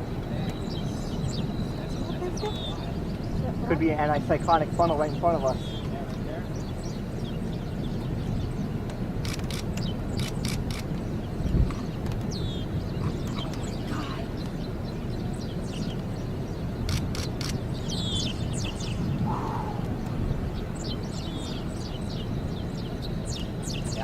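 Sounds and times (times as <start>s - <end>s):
birds chirping: 0.0s - 24.0s
steady low rumble: 0.0s - 24.0s
sharp clicks: 8.8s - 12.4s, 16.8s - 17.6s.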